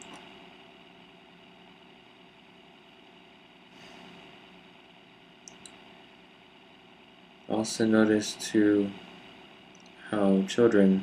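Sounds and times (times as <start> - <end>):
low hum and hiss: 0.0 - 11.0
faint clicks: 5.4 - 5.8, 9.7 - 10.0.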